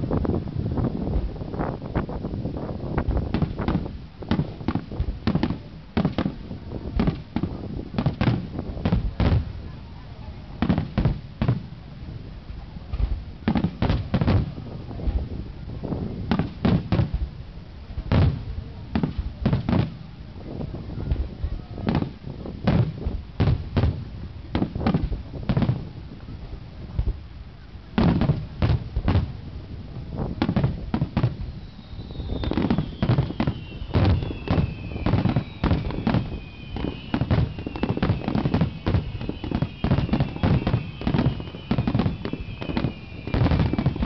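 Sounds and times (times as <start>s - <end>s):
firework shells booming: 30.4s - 44.0s
high descending whistles: 31.4s - 44.0s.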